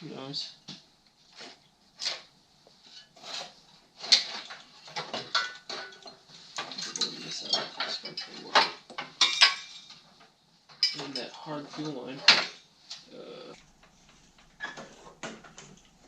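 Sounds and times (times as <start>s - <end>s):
metal tools clinking and scraping: 1.3s - 13.0s.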